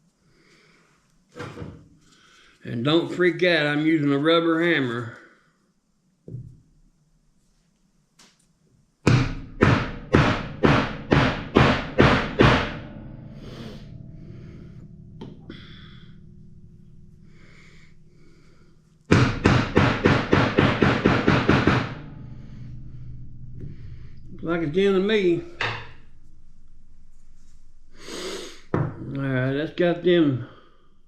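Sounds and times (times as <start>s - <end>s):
rubber mallet striking metal: 9.1s - 18.3s, 19.1s - 26.1s.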